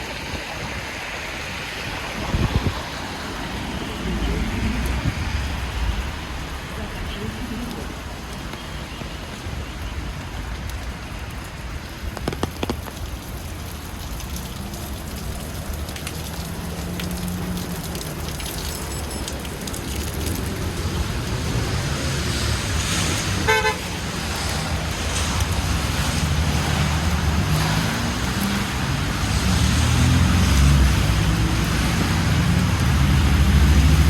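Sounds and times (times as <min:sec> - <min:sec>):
low traffic rumble: 0:00.0 - 0:34.0
rain on city street: 0:00.0 - 0:34.0
rapid ticks: 0:12.2 - 0:13.3.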